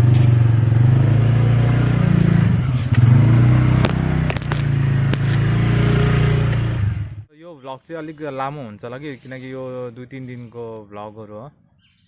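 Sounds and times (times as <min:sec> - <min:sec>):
small vehicle engine revving: 0:00.0 - 0:07.3.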